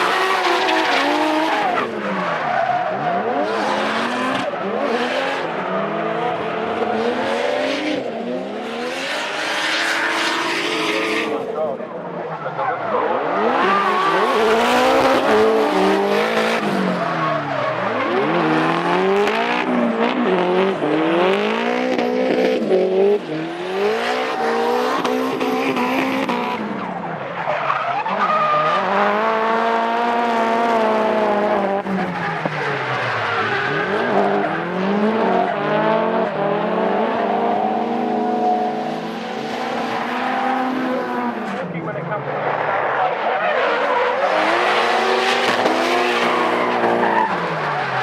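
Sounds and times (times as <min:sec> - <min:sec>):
car engines revving: 0:00.0 - 0:48.0.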